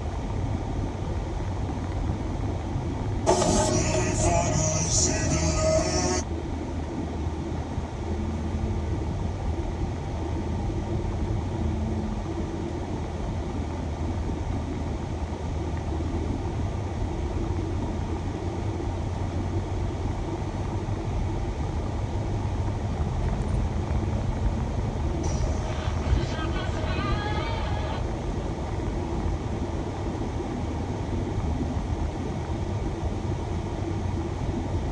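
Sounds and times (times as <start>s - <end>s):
van engine rumble: 0.0s - 34.9s
road noise: 3.2s - 6.3s, 21.4s - 30.2s.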